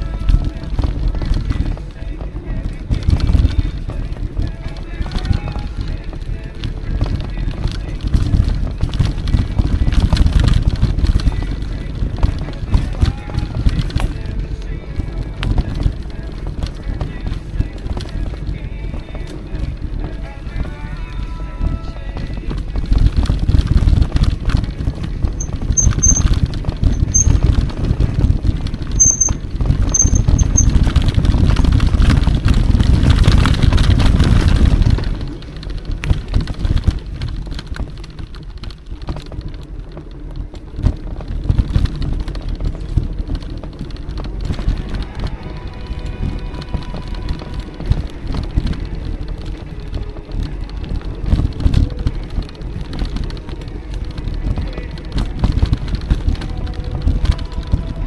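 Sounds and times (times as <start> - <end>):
mountain bike rattling: 0.0 - 58.0
wind rumble on microphone: 0.0 - 58.0
short high squeaks: 25.4 - 27.8, 28.8 - 31.7.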